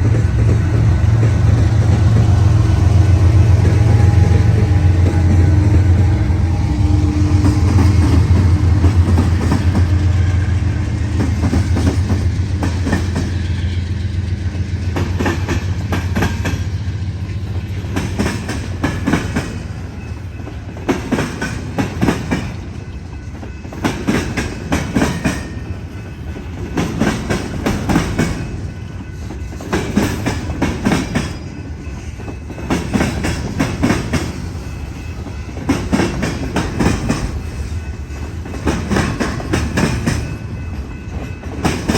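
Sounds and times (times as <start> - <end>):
low diesel locomotive drone: 0.0 - 41.9
train wheels clattering over rails: 0.0 - 41.9.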